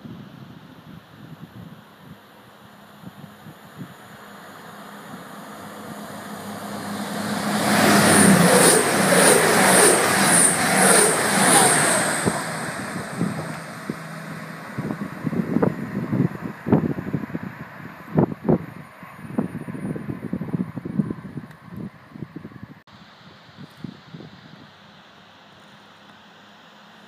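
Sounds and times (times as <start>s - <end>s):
train passing at speed: 2.4s - 20.7s
engine hum: 2.4s - 21.4s.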